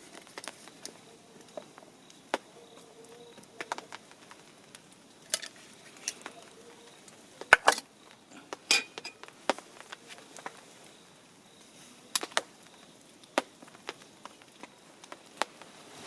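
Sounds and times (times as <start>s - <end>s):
cookware clinking and knocking: 8.7s - 9.2s.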